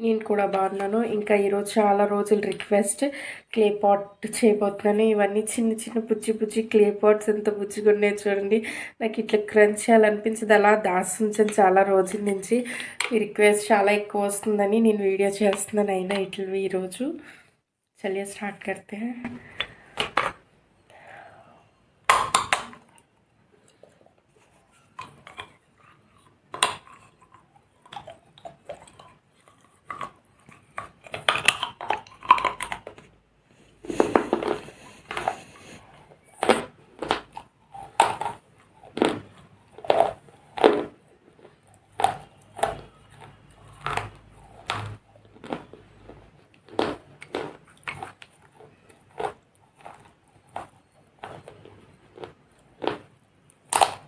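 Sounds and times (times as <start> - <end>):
clay pots crunching and cracking: 0.0 - 2.8, 11.1 - 16.4, 22.0 - 54.0.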